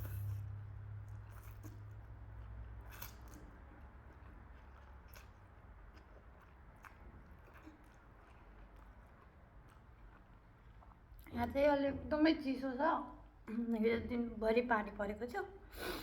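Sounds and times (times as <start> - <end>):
close-up chewing of food: 0.0 - 11.3
low steady hum: 0.0 - 16.0.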